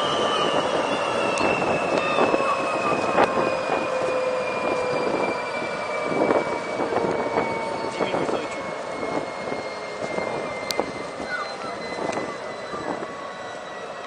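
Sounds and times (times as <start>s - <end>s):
diesel locomotive engine running: 0.0s - 14.0s
high engine whine: 0.0s - 14.0s.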